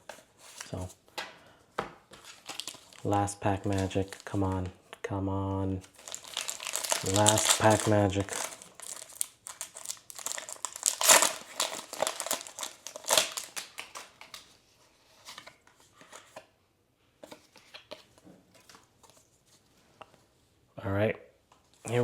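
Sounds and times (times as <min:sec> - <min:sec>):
foil wrapper crinkling and tearing: 0:02.2 - 0:04.6, 0:05.9 - 0:14.4.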